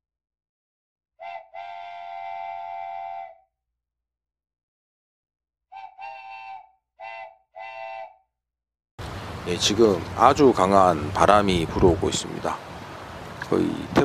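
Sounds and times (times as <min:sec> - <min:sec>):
train whistle blasts: 0:01.2 - 0:03.5, 0:05.7 - 0:08.2.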